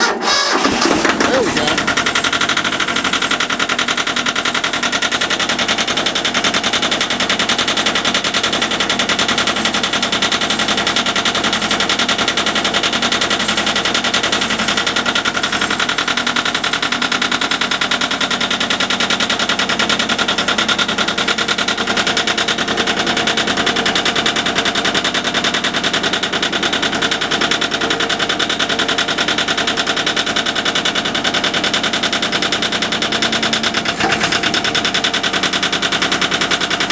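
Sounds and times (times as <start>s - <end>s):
diesel tractor engine clattering: 0.0s - 36.9s.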